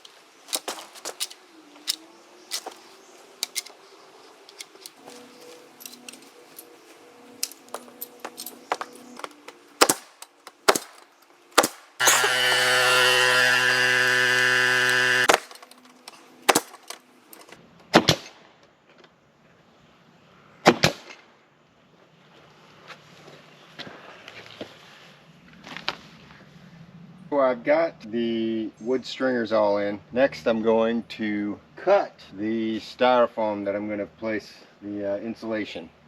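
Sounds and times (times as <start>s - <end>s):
handling clicks and knocks: 0.5s - 2.8s, 3.4s - 3.8s, 4.5s - 6.7s, 7.4s - 11.8s, 15.2s - 17.6s
pneumatic stapler shots: 11.6s - 15.7s, 16.5s - 17.0s
motor humming: 12.0s - 15.4s.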